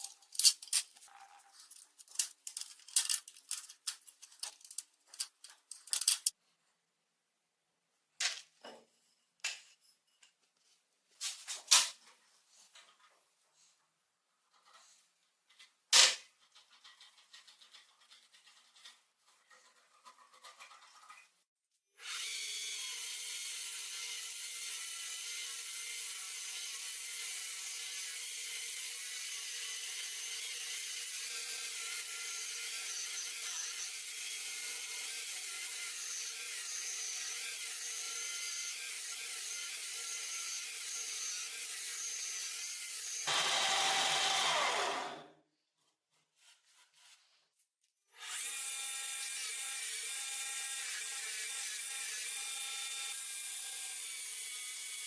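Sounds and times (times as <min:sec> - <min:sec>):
power tool working metal: 0:22.0 - 0:45.3.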